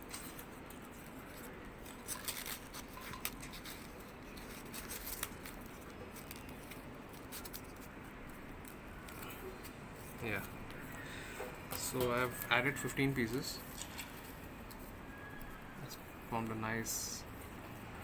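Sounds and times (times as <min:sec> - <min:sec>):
paper rustling and crinkling: 0:00.0 - 0:16.0
sharp paper crackles: 0:00.1 - 0:09.4.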